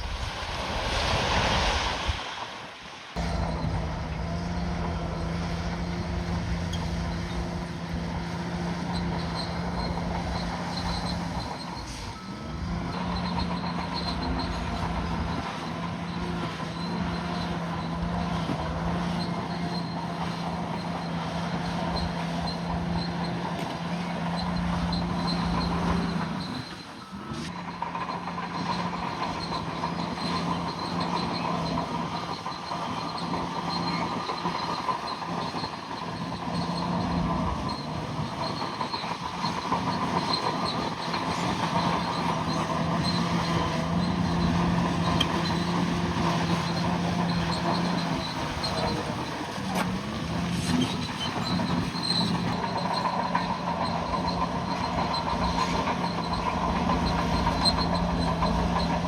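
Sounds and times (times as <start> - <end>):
loud rushing noise: 0.0 - 4.1
bulldozer diesel engine humming: 3.1 - 59.0.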